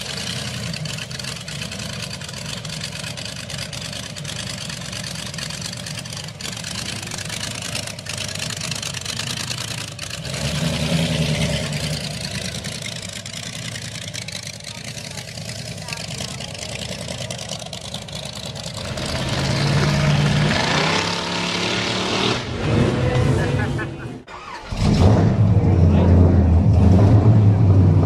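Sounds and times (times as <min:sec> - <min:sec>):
vee eight engine idling: 0:00.0 - 0:10.6, 0:11.2 - 0:20.6.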